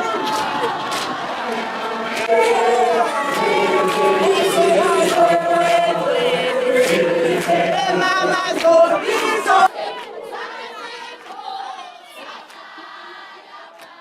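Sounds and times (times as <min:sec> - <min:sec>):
group singing chant-like song: 0:00.0 - 0:14.0.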